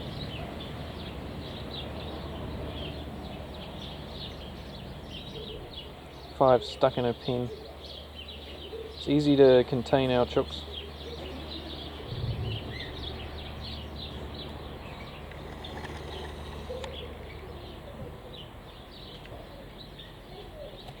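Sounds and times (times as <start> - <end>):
birds chirping: 0.0 - 21.0
low background rumble: 11.8 - 16.6.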